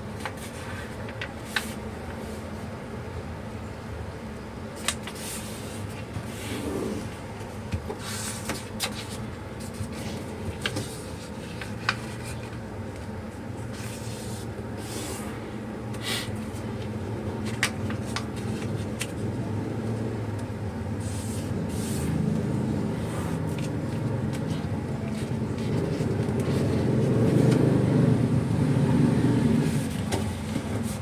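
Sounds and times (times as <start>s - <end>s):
paper rustling and creasing: 7.4s - 15.3s, 16.4s - 27.9s.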